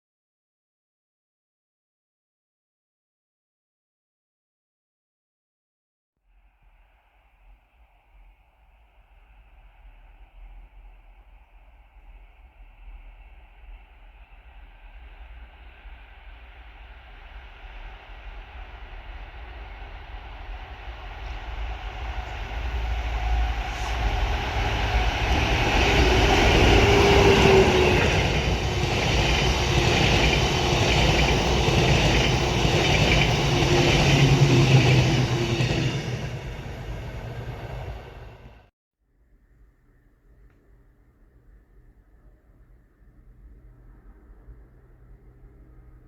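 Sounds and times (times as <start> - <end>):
train running past: 7.8 - 38.7.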